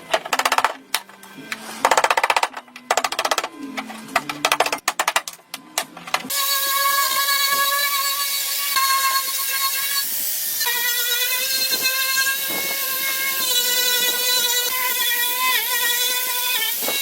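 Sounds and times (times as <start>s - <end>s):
electric power tool whining: 6.3s - 17.0s.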